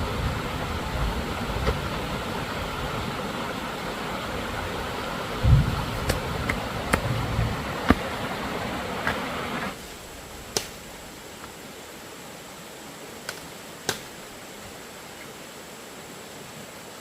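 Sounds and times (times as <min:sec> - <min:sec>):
steady background hiss: 0:00.0 - 0:17.0
dull low thumps: 0:05.4 - 0:08.3.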